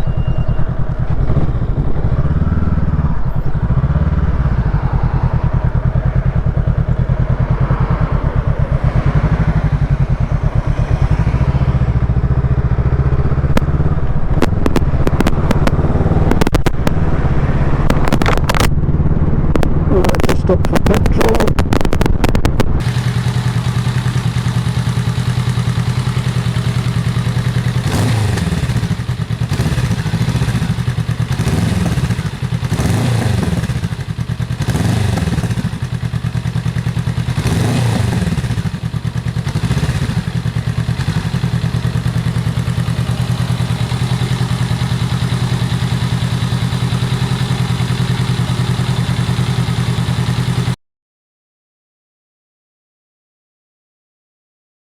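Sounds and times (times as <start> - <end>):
motorcycle engine revving: 0.0 - 50.8
crackling clicks: 13.5 - 17.0, 17.8 - 18.8, 19.5 - 22.8.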